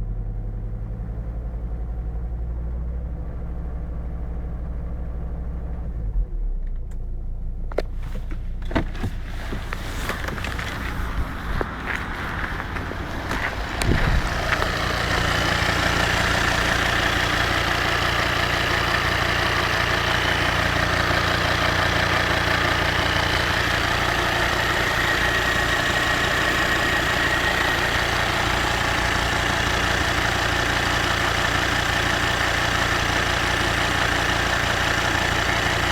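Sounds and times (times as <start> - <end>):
diesel engine idling with knock: 0.0 - 35.9.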